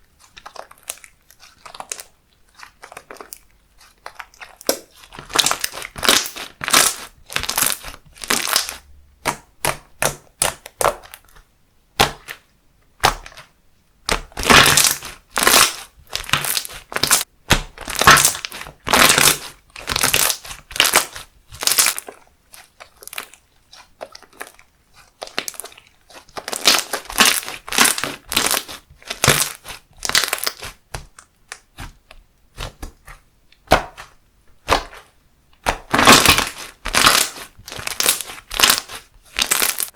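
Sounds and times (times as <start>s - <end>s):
slime squishing: 0.0s - 39.9s.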